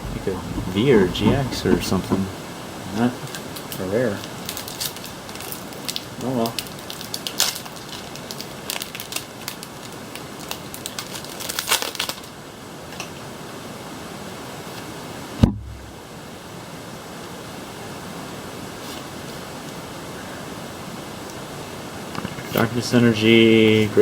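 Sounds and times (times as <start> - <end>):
foil wrapper crinkling: 3.3 - 12.4
steady hiss: 12.0 - 24.0
low thump: 15.4 - 16.0.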